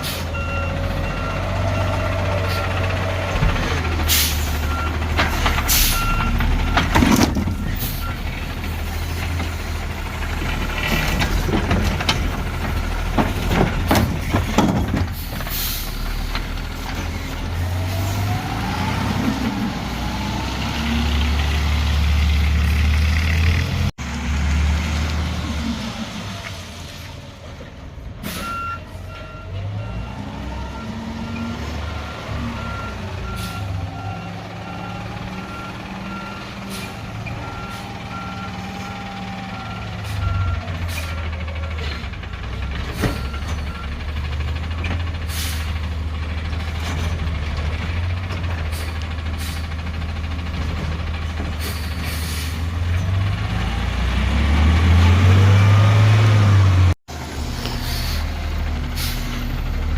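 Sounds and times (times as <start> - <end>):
diesel truck engine: 0.0 - 59.9
reversing beeper: 5.7 - 8.4, 28.3 - 41.1.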